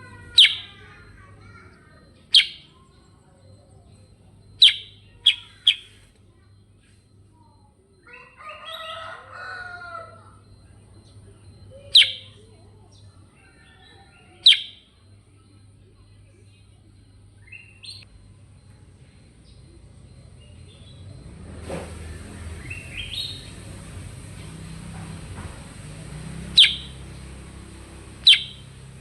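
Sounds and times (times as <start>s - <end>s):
bird sharp calls: 0.0s - 2.8s, 4.4s - 6.1s, 11.8s - 12.5s, 13.5s - 14.9s, 26.1s - 29.0s
bulbul warbling song: 0.0s - 6.0s, 10.5s - 12.5s, 14.4s - 14.9s, 25.8s - 29.0s
faint bird chirps: 0.0s - 21.3s, 26.1s - 29.0s.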